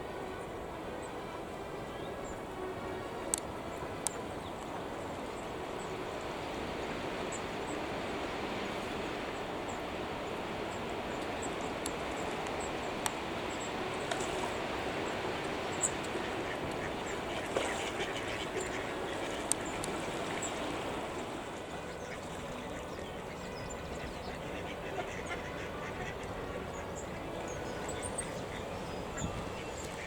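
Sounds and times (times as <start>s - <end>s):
ducks quacking: 16.2s - 19.4s, 21.8s - 27.4s.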